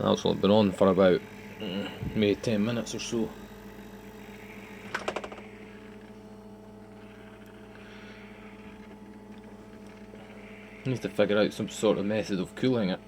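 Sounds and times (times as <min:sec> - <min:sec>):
compressor humming: 0:00.0 - 0:13.0
rattle of clicks: 0:04.8 - 0:06.2.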